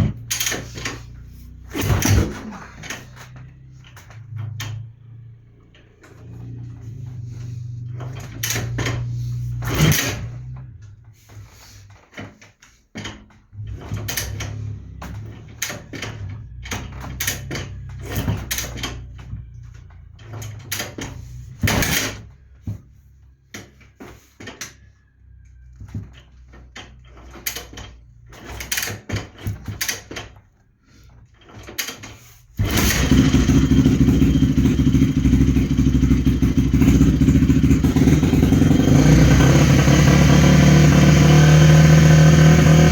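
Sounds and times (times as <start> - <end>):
motorcycle engine running: 0.0 - 11.1, 32.6 - 42.9
kick-starter clunking: 0.0 - 42.9.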